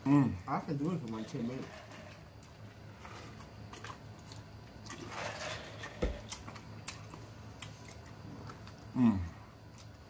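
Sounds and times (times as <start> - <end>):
chewing and lip-smacking: 6.2 - 10.0.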